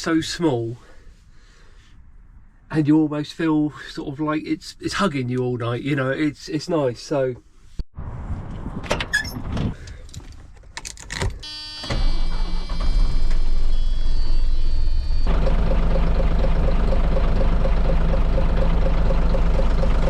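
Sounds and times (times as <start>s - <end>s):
starter motor whine: 11.8s - 20.0s
diesel engine idling: 15.2s - 20.0s.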